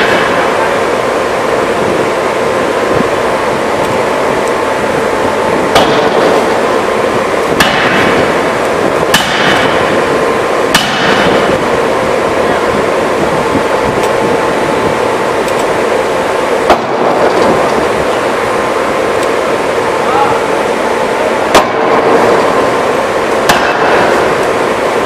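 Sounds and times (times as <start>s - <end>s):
machinery hum: 0.0s - 25.0s
forging hammer blows: 5.6s - 12.3s, 21.2s - 25.0s.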